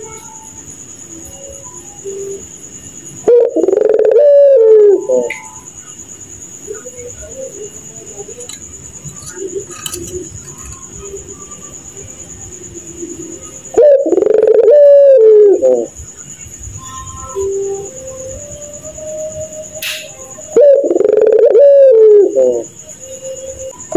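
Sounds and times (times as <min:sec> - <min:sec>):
high-pitched whine: 0:00.0 - 0:23.9
dove laughing call: 0:03.3 - 0:05.5, 0:13.7 - 0:15.9, 0:20.6 - 0:22.7.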